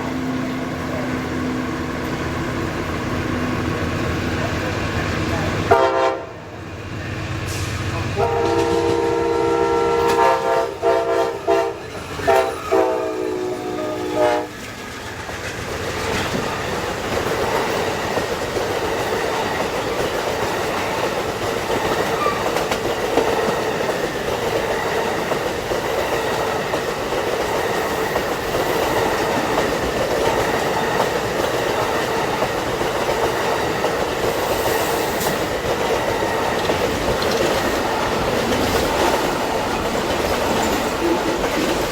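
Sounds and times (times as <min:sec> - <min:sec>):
train rumbling past: 0:00.0 - 0:41.9
train horn blasts: 0:05.6 - 0:06.5, 0:08.1 - 0:14.6
wheels clacking on rail joints: 0:07.4 - 0:41.9.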